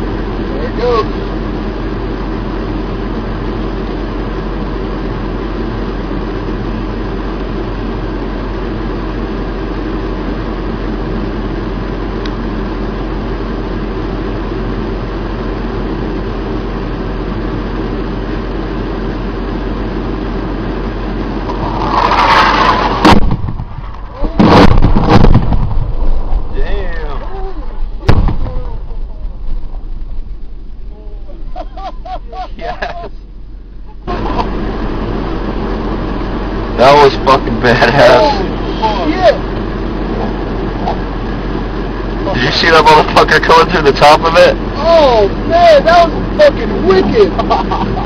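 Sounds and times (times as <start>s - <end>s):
rumbling background noise: 0.0s - 48.0s
rushing sliding whine: 0.0s - 48.0s
bomb explosions: 22.7s - 26.7s, 27.7s - 30.9s.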